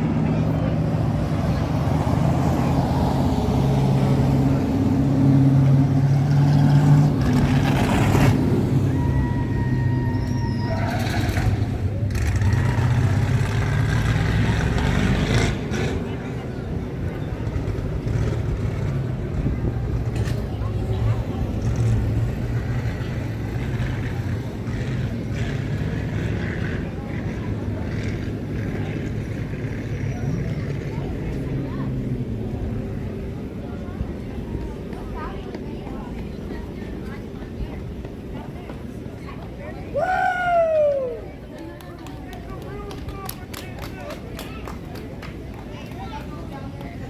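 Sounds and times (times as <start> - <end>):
race truck engine running hard: 0.0 - 35.0.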